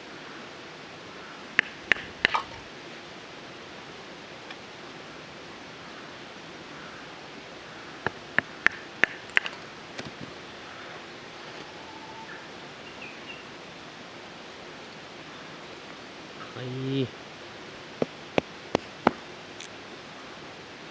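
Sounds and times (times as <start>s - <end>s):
steady background hiss: 0.0s - 20.9s
knife and sticks knocking: 1.6s - 2.6s, 8.1s - 9.6s, 18.0s - 19.2s.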